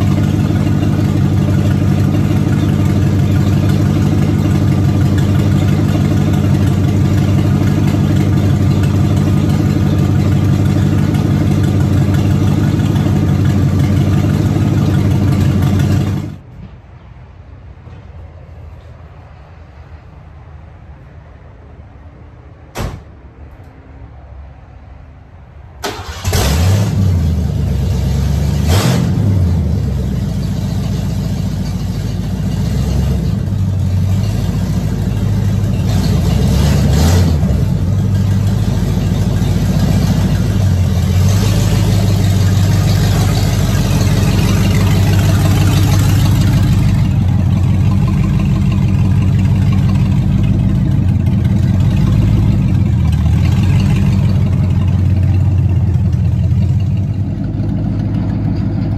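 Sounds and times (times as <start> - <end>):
car engine starting and revving: 25.8 - 58.9.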